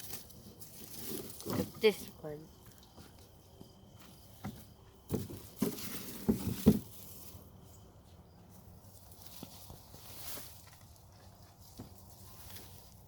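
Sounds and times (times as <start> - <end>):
onions knocking and rustling: 0.0 - 2.2, 5.0 - 7.3.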